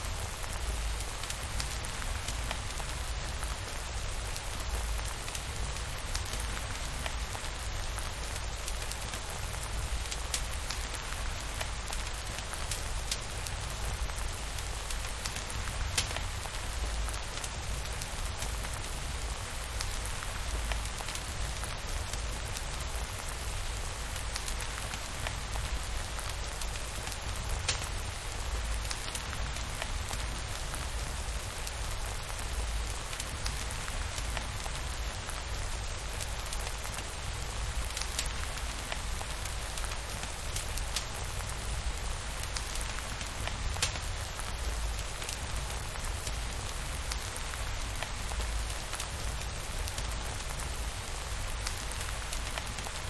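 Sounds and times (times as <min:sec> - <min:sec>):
steady rain falling: 0:00.0 - 0:53.0
small sharp ticks: 0:15.3 - 0:16.2, 0:26.7 - 0:28.0, 0:42.5 - 0:44.1.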